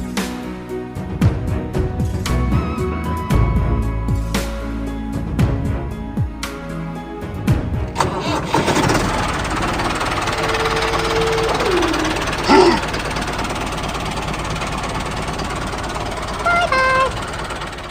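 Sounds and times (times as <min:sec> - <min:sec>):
music: 0:00.0 - 0:14.2
small tractor motor running: 0:07.9 - 0:17.9.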